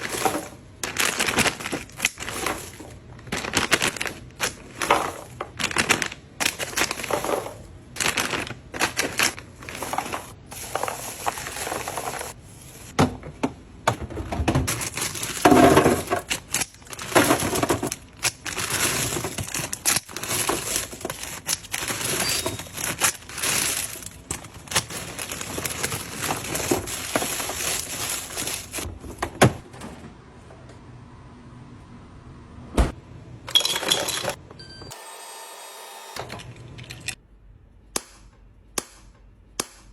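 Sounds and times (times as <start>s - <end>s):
small hard objects clattering: 0.0s - 12.4s, 14.6s - 28.9s
rustling: 14.7s - 28.9s.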